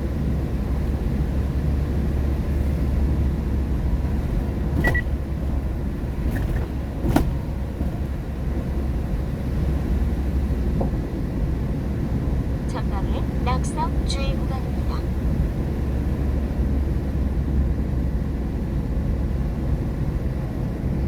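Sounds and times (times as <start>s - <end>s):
tyre and road rumble: 2.2s - 11.2s.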